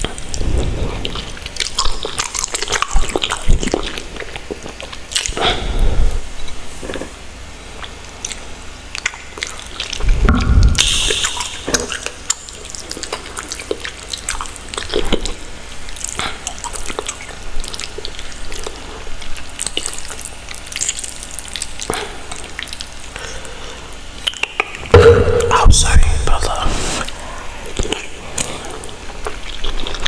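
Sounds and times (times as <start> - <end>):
low steady hum: 0.0 - 30.0
wet sticky noodle squishes: 10.8 - 24.9
thump: 24.9 - 25.7.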